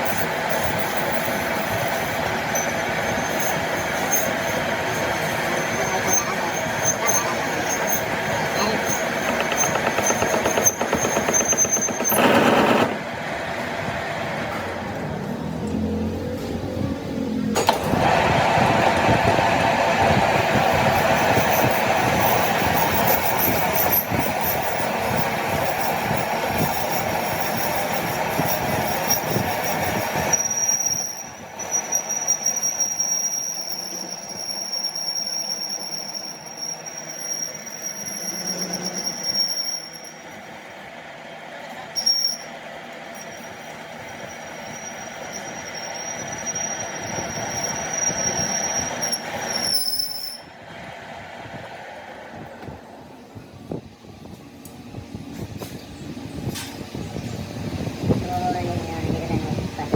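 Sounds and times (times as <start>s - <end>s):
metal-on-metal squeal: 0.8s - 12.8s, 26.6s - 40.5s, 42.0s - 50.6s
machine grinding metal: 1.4s - 13.1s.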